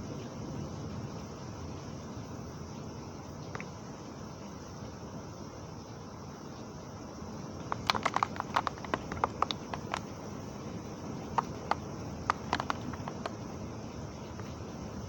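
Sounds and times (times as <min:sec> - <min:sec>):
drops tapping a hard surface: 0:07.7 - 0:10.1, 0:11.4 - 0:13.3.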